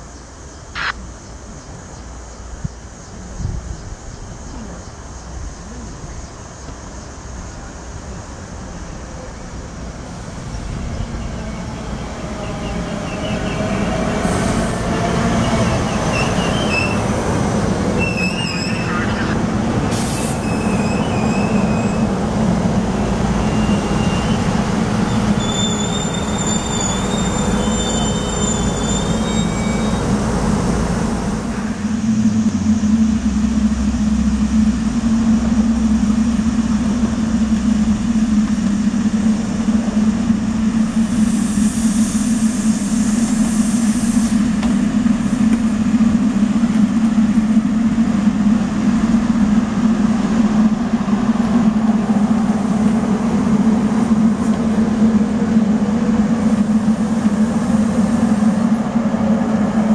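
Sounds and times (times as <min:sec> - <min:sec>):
standing train low hum: 0:00.0 - 0:59.9
train wheels rumbling on rail: 0:00.0 - 0:59.9
wheel and brake squeals: 0:12.4 - 0:14.7, 0:15.3 - 0:17.2, 0:17.9 - 0:22.2, 0:23.4 - 0:30.5.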